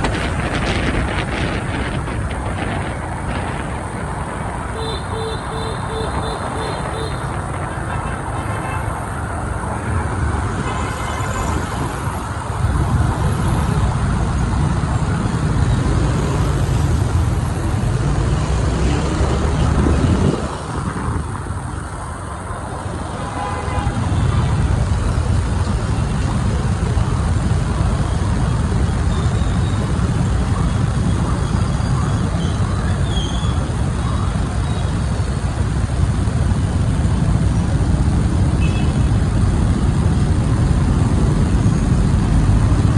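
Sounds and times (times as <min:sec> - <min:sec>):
motorbike engine rumble: 0:00.0 - 0:09.2
wind on microphone: 0:00.0 - 0:23.2
traffic noise: 0:00.0 - 0:42.9.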